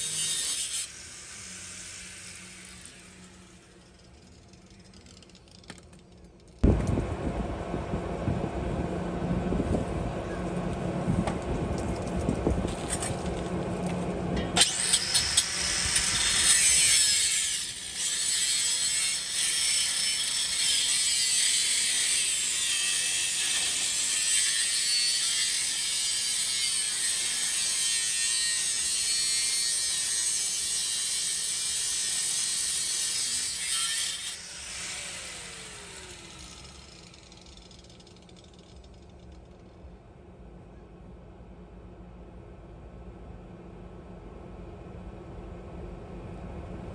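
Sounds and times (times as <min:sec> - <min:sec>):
power tool cutting steel pipe: 0:00.0 - 0:04.8, 0:14.6 - 0:38.6.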